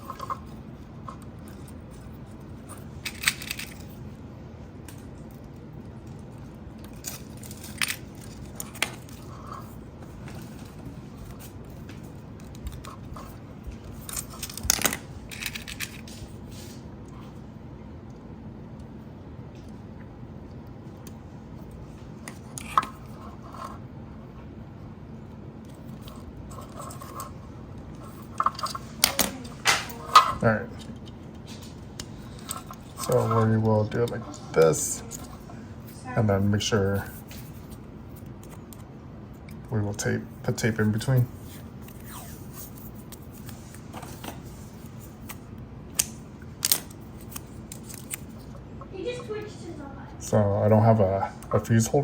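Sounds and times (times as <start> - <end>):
low background hum: 0.0 - 52.0
hands handling wires and tape: 4.8 - 16.8, 25.6 - 36.2, 40.7 - 48.7.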